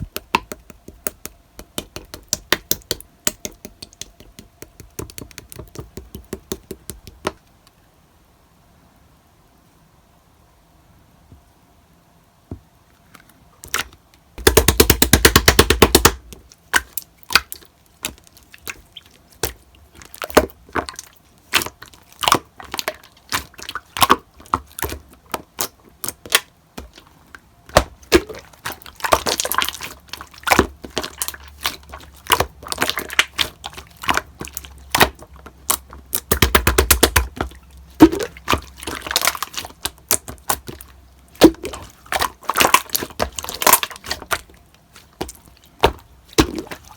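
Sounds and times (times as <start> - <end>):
air bubbles popping: 36.2 - 40.2.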